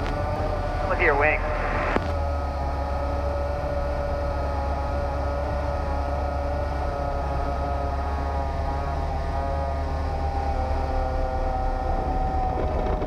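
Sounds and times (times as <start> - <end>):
plane engine and propeller drone: 0.0 - 13.0.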